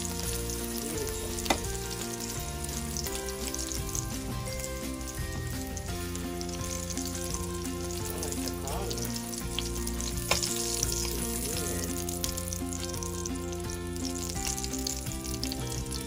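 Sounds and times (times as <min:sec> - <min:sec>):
background music: 0:00.0 - 0:16.0
food sizzling in oil: 0:00.0 - 0:16.0.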